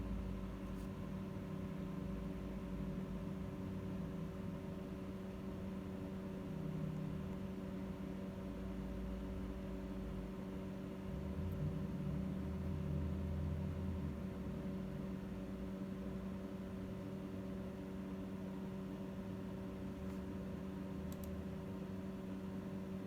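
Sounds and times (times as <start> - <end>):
faint clicks: 21.1 - 21.4.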